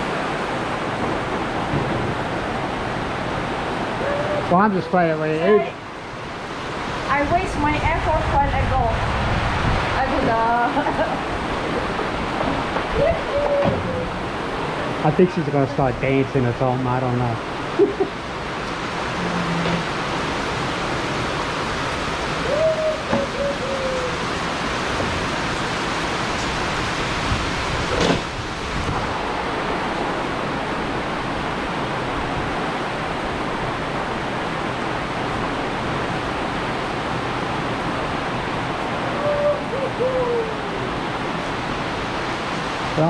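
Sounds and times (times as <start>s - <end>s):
heavy rain pouring: 0.0s - 43.0s
short falling call: 22.4s - 24.3s.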